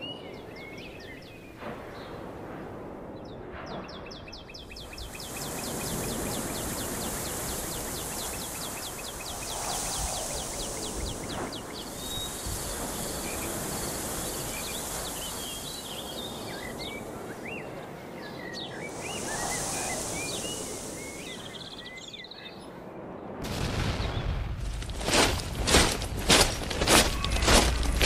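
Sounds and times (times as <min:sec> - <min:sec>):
small birds chirping: 0:00.0 - 0:02.2, 0:03.3 - 0:22.7
steady high hiss: 0:04.8 - 0:22.2.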